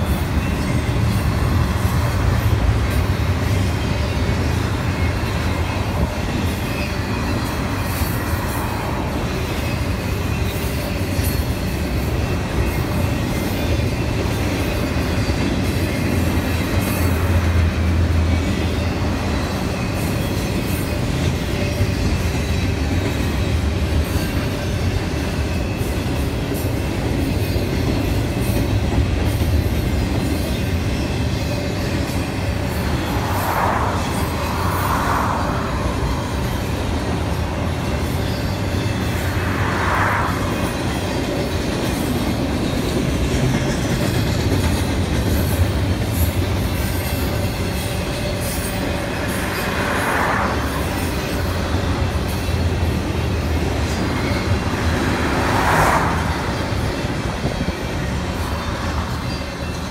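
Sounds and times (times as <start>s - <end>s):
freight train rolling past: 0.0s - 59.9s.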